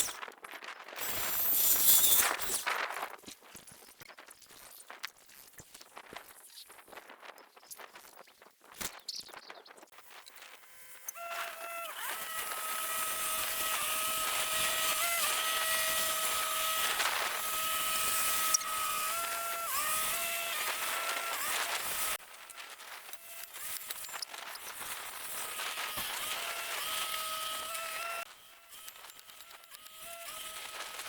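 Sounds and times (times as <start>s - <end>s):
motor whining: 10.0s - 31.0s.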